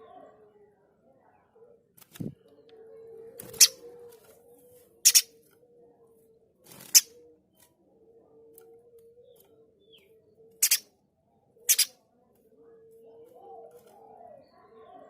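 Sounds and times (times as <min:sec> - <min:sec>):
bird harsh rasping calls: 0:03.5 - 0:03.8, 0:05.0 - 0:05.3, 0:10.6 - 0:10.8, 0:11.7 - 0:11.9.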